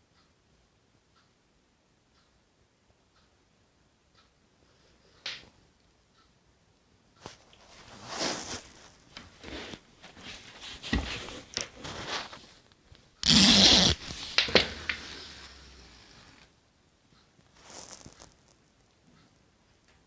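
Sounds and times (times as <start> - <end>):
toy scuffing and clicking: 7.2 - 15.2, 17.4 - 18.6.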